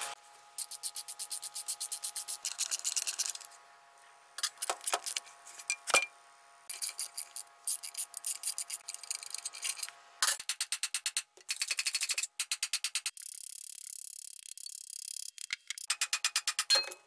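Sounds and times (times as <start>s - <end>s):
screwdriver scratchy metal clicks: 0.6s - 3.5s, 6.7s - 16.8s.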